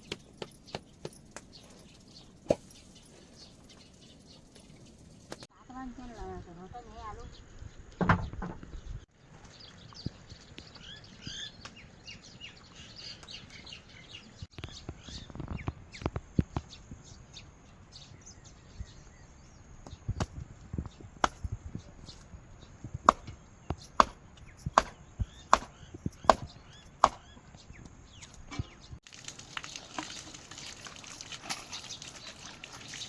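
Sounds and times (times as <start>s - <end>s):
blade chopping wood: 21.2s - 21.5s, 23.1s - 27.4s.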